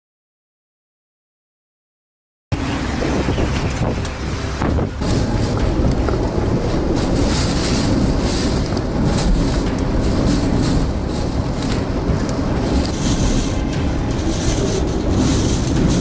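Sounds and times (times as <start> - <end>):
storm wind buffeting microphone: 2.5 - 16.0.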